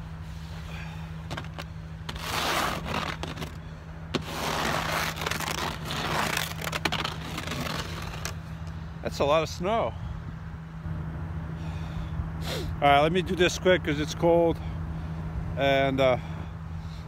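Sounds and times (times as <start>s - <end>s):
snow brush scraping snow: 1.3s - 3.6s, 4.2s - 8.4s.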